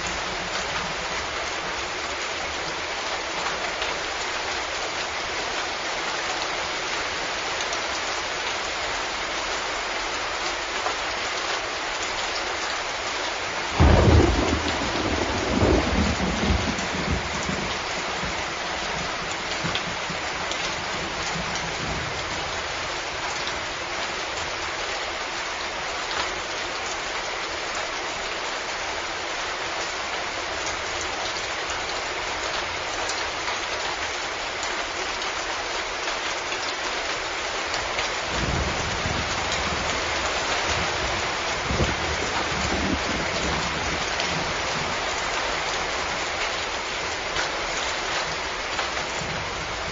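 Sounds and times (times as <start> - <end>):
heavy rain hissing: 12.9 - 25.9, 36.8 - 49.9
loud thunderclap: 13.8 - 18.4, 38.4 - 40.0.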